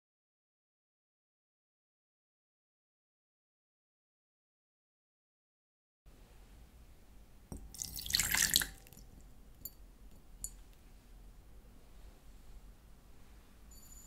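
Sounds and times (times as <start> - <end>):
water poured into a bowl: 7.6 - 9.0.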